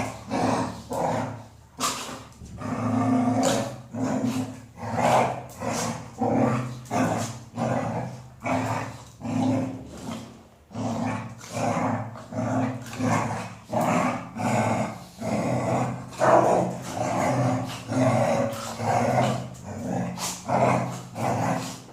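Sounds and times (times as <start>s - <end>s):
dog growling: 0.0s - 21.9s.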